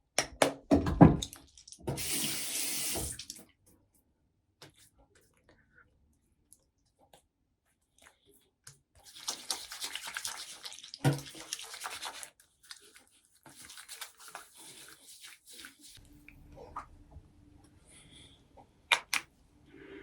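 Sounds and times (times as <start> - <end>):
toothbrush scrubbing teeth: 9.0 - 16.0.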